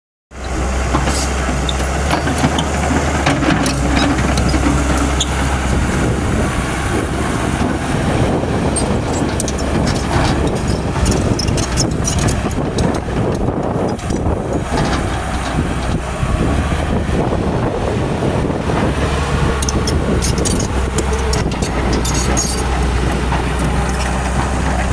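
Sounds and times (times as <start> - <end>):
excavator diesel engine running: 0.3 - 24.9
knocks and clanks: 8.8 - 16.0.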